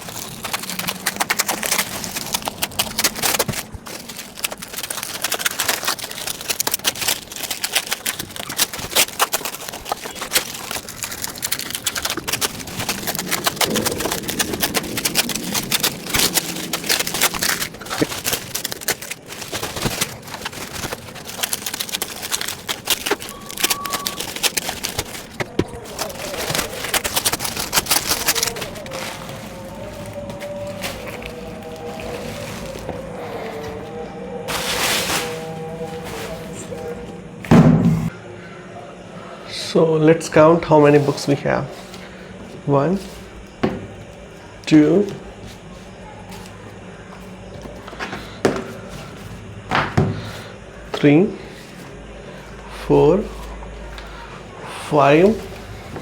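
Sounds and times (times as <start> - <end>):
quick clicks and crackles: 0.0 - 33.8
wrapping rustling and tearing: 0.0 - 37.6, 40.2 - 56.0.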